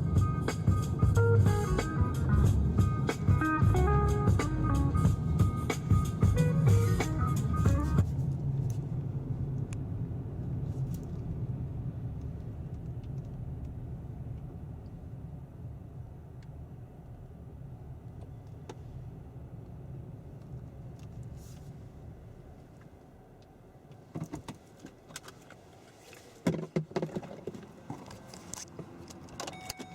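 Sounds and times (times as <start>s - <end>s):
low vehicle rumble: 0.0s - 23.9s.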